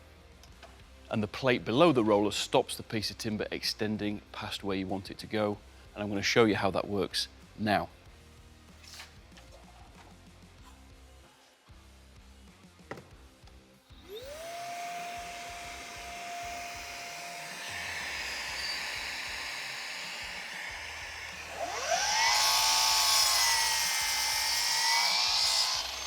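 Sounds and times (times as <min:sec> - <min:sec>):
mitre saw whining: 0:14.0 - 0:26.0
saw blade cutting timber: 0:14.1 - 0:26.0.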